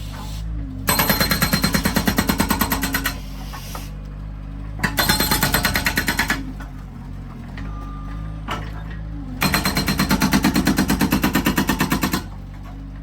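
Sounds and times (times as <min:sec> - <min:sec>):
skid steer engine running: 0:00.0 - 0:13.0
hydraulic breaker hammering: 0:00.9 - 0:03.2, 0:04.8 - 0:06.5, 0:09.4 - 0:12.3.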